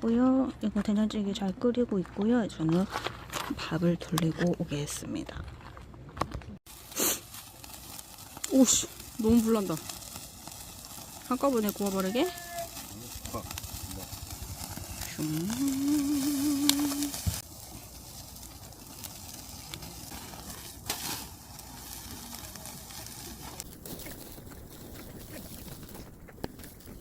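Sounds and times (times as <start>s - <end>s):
wood fire crackles: 0.8s - 27.0s
meat sizzling on a grill: 6.7s - 27.0s.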